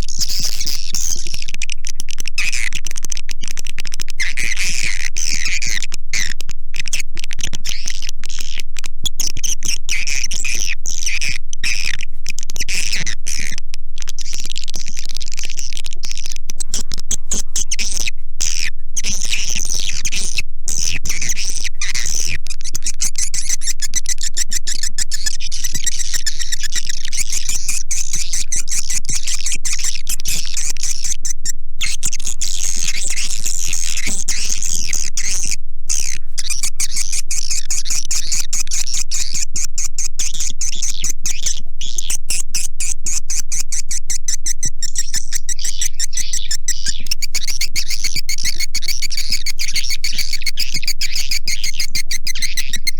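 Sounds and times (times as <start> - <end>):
birds chirping and twittering: 14.2 - 52.9.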